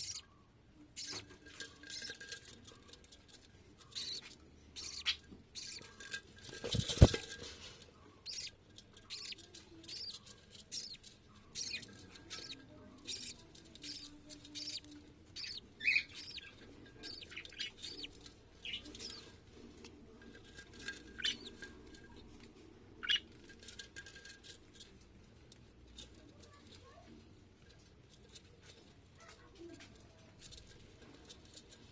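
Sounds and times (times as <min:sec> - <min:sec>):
budgerigars chirping: 0:00.0 - 0:00.3, 0:01.0 - 0:01.2, 0:01.8 - 0:02.2, 0:03.9 - 0:06.0, 0:08.1 - 0:19.3, 0:20.9 - 0:21.6, 0:23.0 - 0:23.3.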